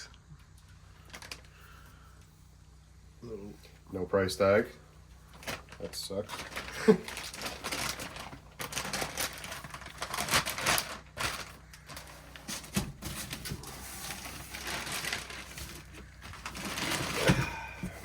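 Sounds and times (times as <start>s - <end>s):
cardboard and plastic rustling: 1.0s - 2.4s, 5.2s - 18.0s.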